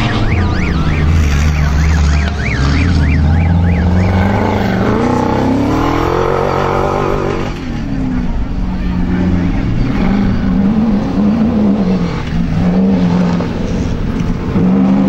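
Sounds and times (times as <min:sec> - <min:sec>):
rising and falling whine: 0:00.0 - 0:07.6
rally car engines revving: 0:00.0 - 0:15.0.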